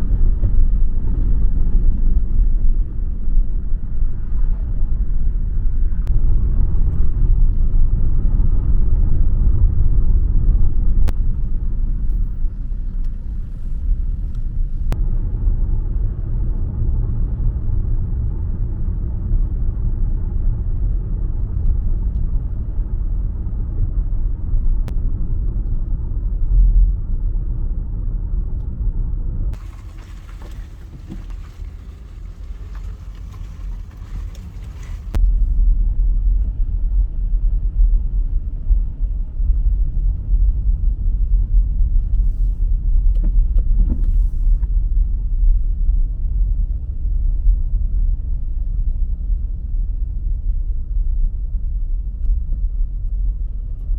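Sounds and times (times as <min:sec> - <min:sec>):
car road rumble: 0:00.0 - 0:53.9
thin road hiss: 0:29.6 - 0:35.2.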